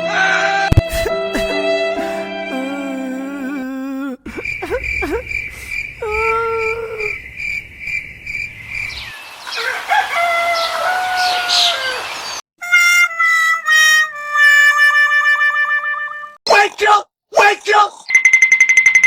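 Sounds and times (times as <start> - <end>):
crickets chirping: 4.3 - 9.4
bird calls: 4.3 - 12.4
rooster crowing: 9.5 - 12.2.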